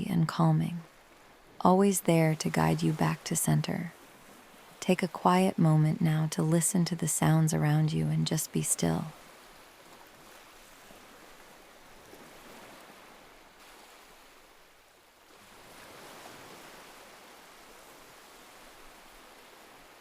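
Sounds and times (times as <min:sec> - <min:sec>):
soft ocean surf: 0:00.0 - 0:20.0.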